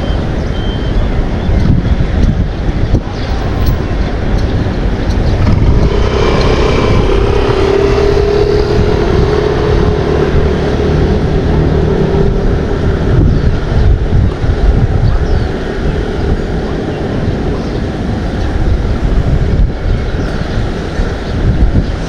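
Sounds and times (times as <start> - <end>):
engine drone: 0.0 - 22.0
wind rumbling on microphone: 0.0 - 22.0.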